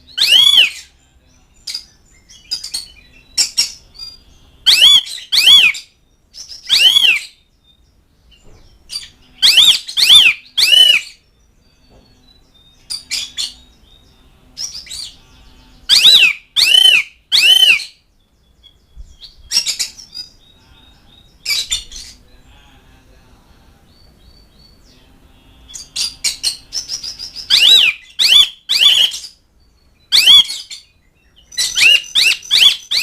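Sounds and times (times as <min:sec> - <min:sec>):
bird calling: 0:00.0 - 0:00.9, 0:03.4 - 0:07.4, 0:08.5 - 0:11.2, 0:15.8 - 0:18.0, 0:25.7 - 0:29.4, 0:30.0 - 0:33.0.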